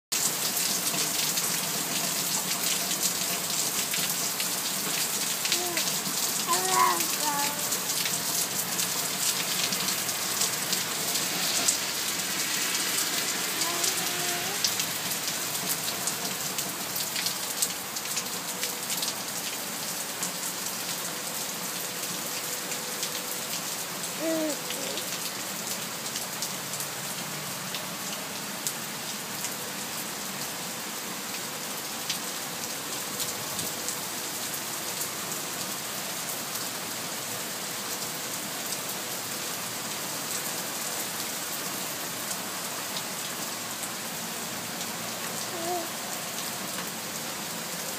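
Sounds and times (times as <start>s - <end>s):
steady rain: 0.1s - 47.9s
raindrops ticking on hard surface: 0.2s - 11.8s.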